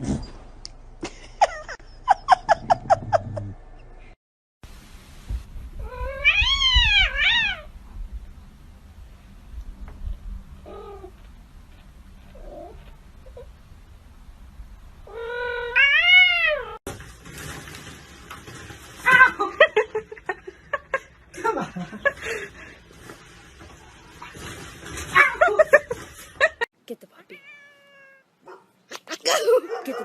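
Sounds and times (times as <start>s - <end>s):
cat meowing: 5.8s - 7.7s, 15.1s - 16.8s, 27.3s - 28.3s
cat yowling: 5.8s - 7.7s, 15.1s - 16.8s, 27.4s - 28.6s.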